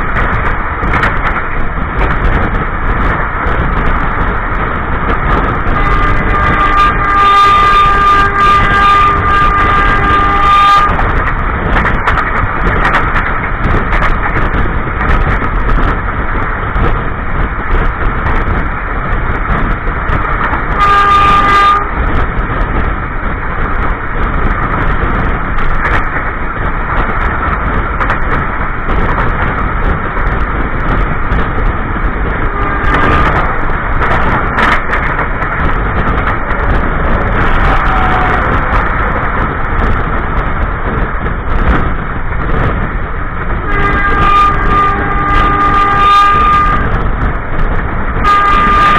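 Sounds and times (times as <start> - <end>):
train wheels on track: 0.0 - 48.9
train horn: 5.7 - 11.2, 20.7 - 22.0, 32.4 - 33.6, 36.5 - 38.8, 43.6 - 47.0, 48.1 - 48.9.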